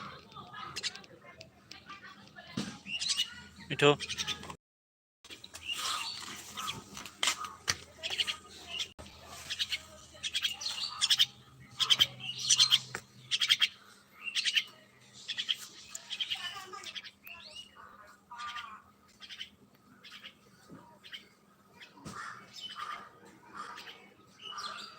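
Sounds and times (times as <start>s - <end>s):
mynas calling rapidly: 0.0s - 1.1s, 2.8s - 4.6s, 5.6s - 20.4s, 21.0s - 24.9s.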